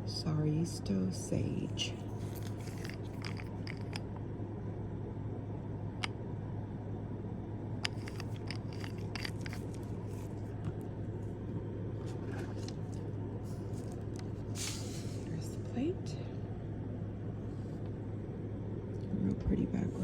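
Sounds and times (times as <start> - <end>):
steady low hum: 0.0 - 20.0
bottles and packaging handled: 1.8 - 4.1, 7.8 - 10.9.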